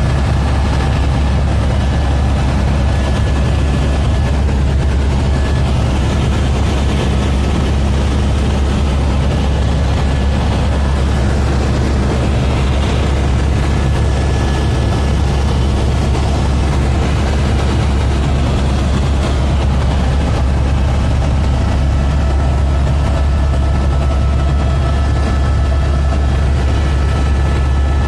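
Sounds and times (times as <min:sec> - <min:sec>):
helicopter rotor and engine drone: 0:00.0 - 0:28.0.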